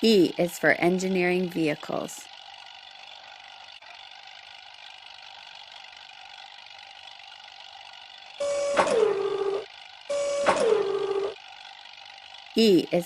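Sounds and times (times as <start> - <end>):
steady machine hum: 0.0 - 13.0
loud tone blasts: 8.4 - 11.4.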